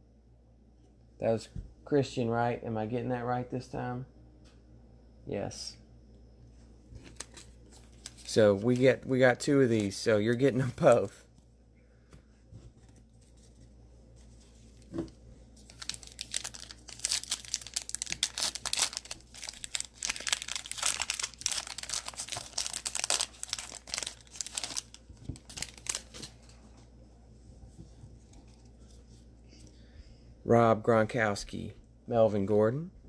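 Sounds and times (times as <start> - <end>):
plastic wrapper tearing and crinkling: 7.0 - 9.0, 15.6 - 26.5.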